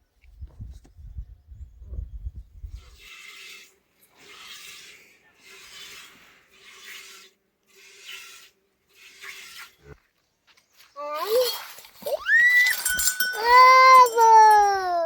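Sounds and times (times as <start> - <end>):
rasping scrapes: 2.8 - 10.0.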